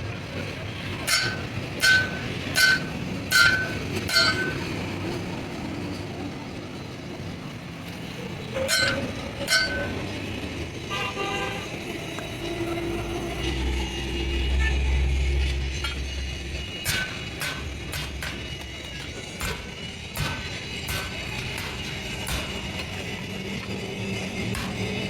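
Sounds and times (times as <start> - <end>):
metal struck ringing: 1.1 - 4.7, 8.6 - 10.0.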